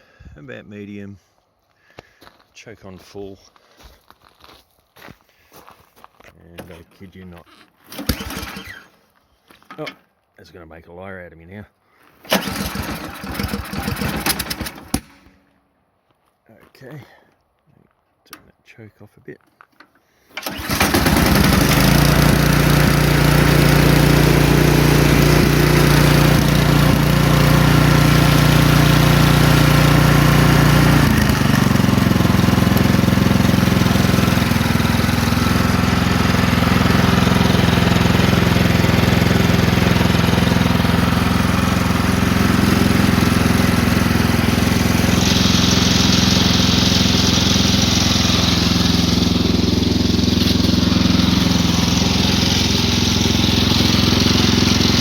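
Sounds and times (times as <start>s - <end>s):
snowblower engine running: 7.9s - 9.0s, 12.2s - 15.2s, 20.3s - 55.0s.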